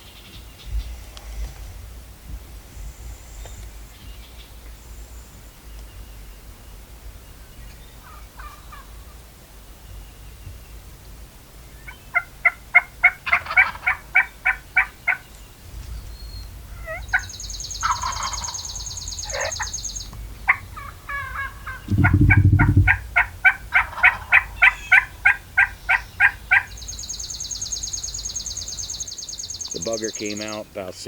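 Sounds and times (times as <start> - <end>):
wild turkey calling: 7.1 - 9.2, 11.6 - 15.4, 16.7 - 31.0
buzzy high sound: 21.9 - 23.1
low thump: 21.9 - 23.1.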